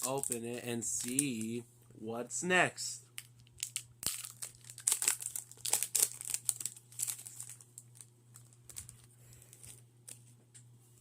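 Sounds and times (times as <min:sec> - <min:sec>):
foil wrapper tearing and crinkling: 0:00.0 - 0:01.5, 0:03.6 - 0:09.8.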